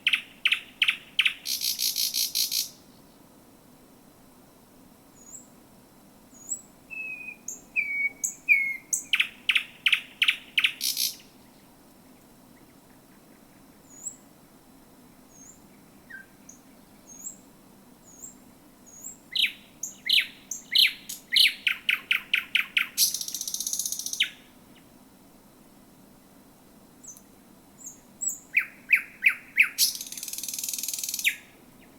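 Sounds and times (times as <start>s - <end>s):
thrush nightingale singing: 0.0s - 3.2s, 5.2s - 5.5s, 6.3s - 11.7s, 12.5s - 14.2s, 15.1s - 24.9s, 27.8s - 31.9s.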